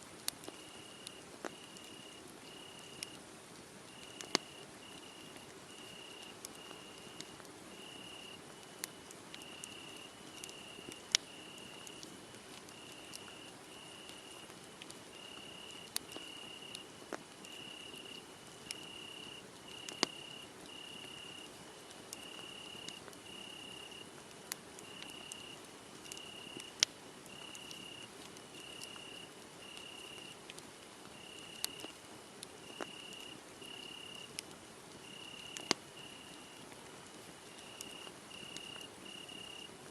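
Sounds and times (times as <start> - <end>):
wood fire crackling: 0.1 - 39.2
crickets chirping: 0.6 - 3.2, 3.9 - 7.2, 7.8 - 8.4, 9.4 - 11.7, 12.7 - 14.4, 15.1 - 16.8, 17.5 - 21.5, 22.2 - 24.0, 24.8 - 25.6, 26.2 - 26.7, 27.3 - 30.3, 31.2 - 31.9, 32.7 - 34.3, 35.0 - 36.6, 37.6 - 39.7
sharp pops from fire: 4.0 - 4.6, 19.7 - 20.2, 35.6 - 35.8.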